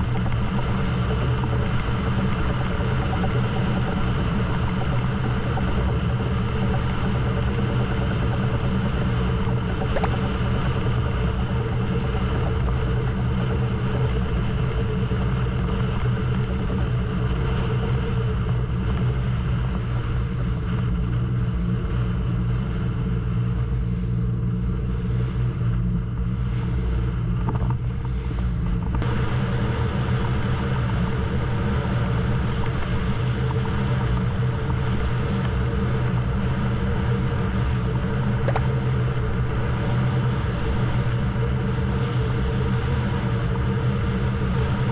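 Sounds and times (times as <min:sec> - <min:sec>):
boat engine humming: 0:00.0 - 0:19.6, 0:37.7 - 0:39.8.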